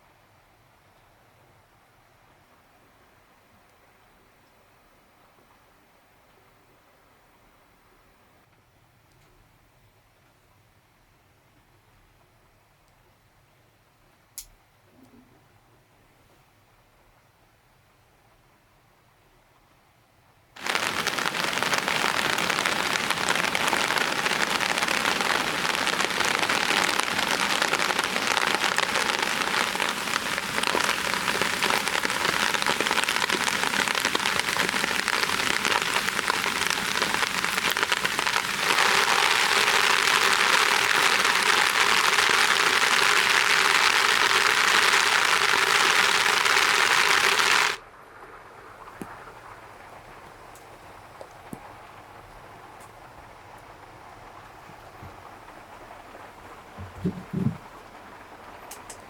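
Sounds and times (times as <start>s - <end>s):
heavy rain falling: 20.6s - 59.0s.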